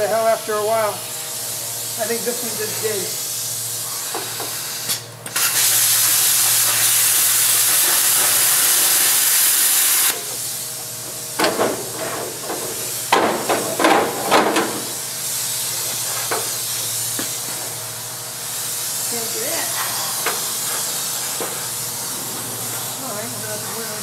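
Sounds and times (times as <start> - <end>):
metal-cutting torch hissing: 0.0 - 24.0
low electrical hum: 4.8 - 24.0
metal knocks and clanks: 11.4 - 15.0.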